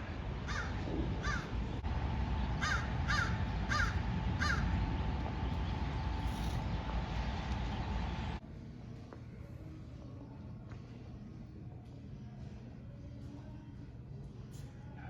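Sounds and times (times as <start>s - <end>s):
steady low rumble: 0.0s - 13.1s
crow cawing harshly: 0.5s - 1.5s, 2.6s - 4.7s.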